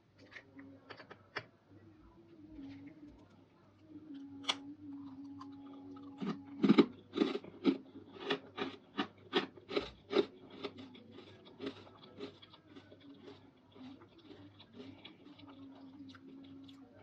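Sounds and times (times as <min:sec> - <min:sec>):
crunchy chewing: 0:04.9 - 0:17.0.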